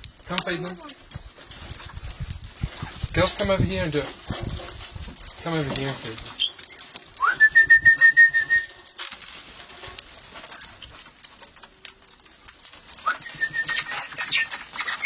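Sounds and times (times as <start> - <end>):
parrots calling and chattering: 0.0 - 7.2, 9.8 - 15.0
whistled note with pulsing flutter: 7.2 - 8.8, 13.0 - 14.2.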